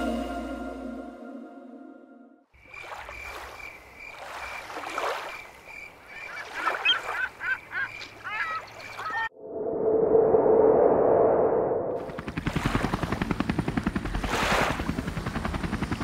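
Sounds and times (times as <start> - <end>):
birds calling: 5.2 - 9.3.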